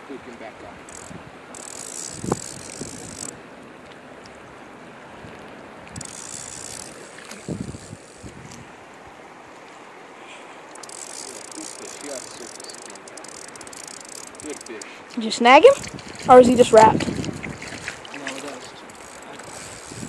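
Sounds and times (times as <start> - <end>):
river rushing: 0.0 - 20.0
fishing reel ratcheting: 0.8 - 3.4, 5.9 - 8.4, 10.7 - 16.4, 17.6 - 20.0.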